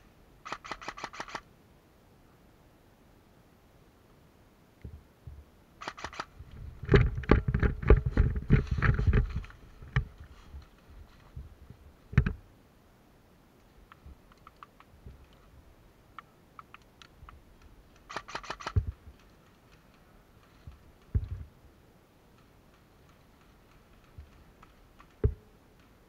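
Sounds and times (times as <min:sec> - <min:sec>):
sharp clicks and knocks: 0:04.8 - 0:10.8, 0:12.1 - 0:12.4, 0:13.9 - 0:15.5, 0:16.2 - 0:21.5, 0:22.3 - 0:26.0
thumps and rattling: 0:06.5 - 0:11.5, 0:12.1 - 0:12.4, 0:20.4 - 0:21.5.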